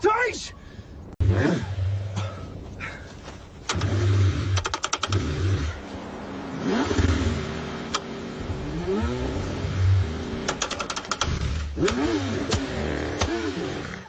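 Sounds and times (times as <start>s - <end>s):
quick clicks: 3.6s - 5.3s, 10.5s - 13.4s
car engine cranking and revving: 3.6s - 14.0s.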